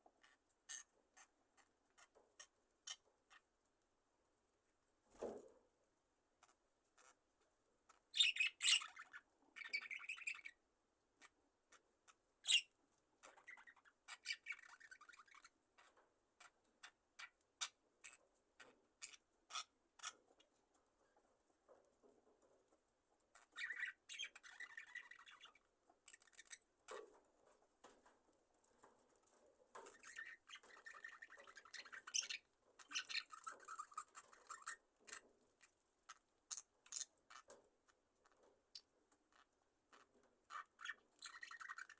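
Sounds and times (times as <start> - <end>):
budgerigars chirping: 8.1 - 10.6, 12.4 - 15.5, 23.4 - 26.6, 30.0 - 35.2.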